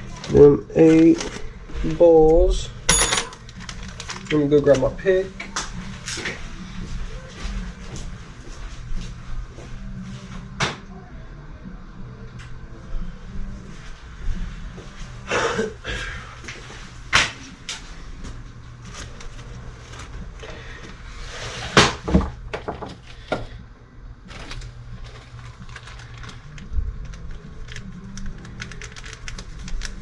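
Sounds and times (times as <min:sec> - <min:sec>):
steady low hum: 0:01.3 - 0:30.0
tools clattering: 0:02.9 - 0:03.7.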